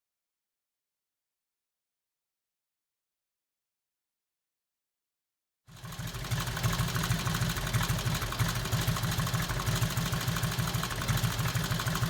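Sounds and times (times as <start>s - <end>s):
motorcycle engine idling: 5.7s - 12.0s.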